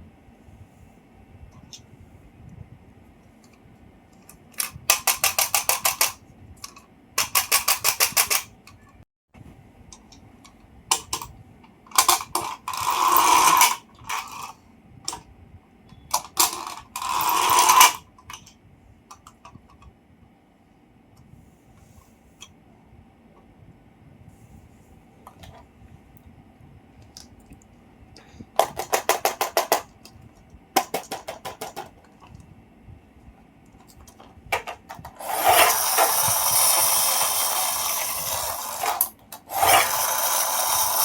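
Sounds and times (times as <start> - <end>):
mechanism ratcheting clicks: 4.3 - 8.5, 11.9 - 15.2, 16.1 - 19.6, 33.9 - 41.0.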